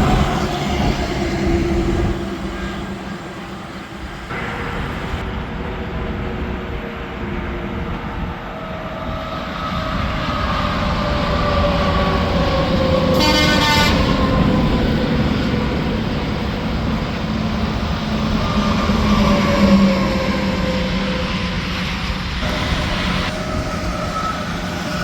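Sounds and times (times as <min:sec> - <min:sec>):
highway traffic passing: 0:00.0 - 0:25.0
vehicle horn blast: 0:13.1 - 0:14.2.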